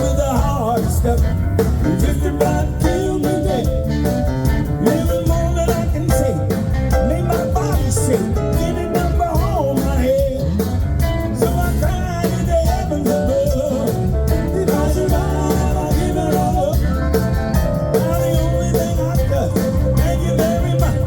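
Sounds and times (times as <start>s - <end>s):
bass: 0.0s - 21.0s
blues band playing: 0.0s - 21.0s
drums steady beat: 0.0s - 21.0s.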